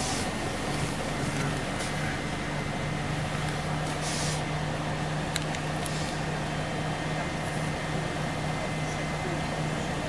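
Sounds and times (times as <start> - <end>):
bus engine hum: 0.0 - 10.0
short hiss: 4.0 - 4.5.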